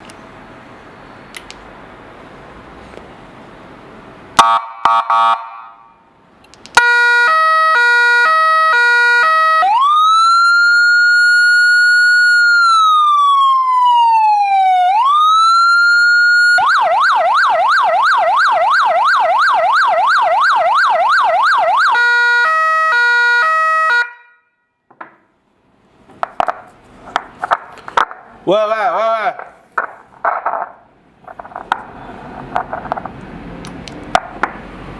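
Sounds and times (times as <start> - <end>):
electronic siren cycling tones: 6.8 - 24.2.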